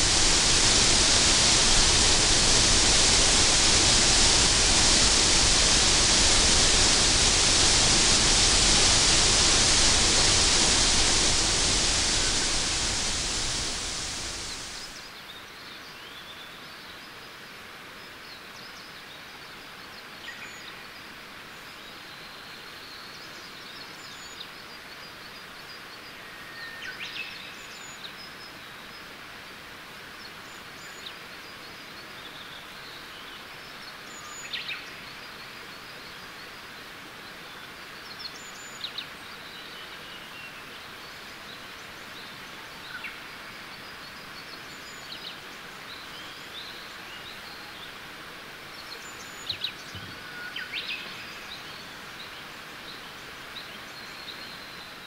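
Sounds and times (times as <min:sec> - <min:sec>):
wild birds chirping: 0:00.0 - 0:15.0
steady outdoor hiss: 0:00.0 - 0:55.0.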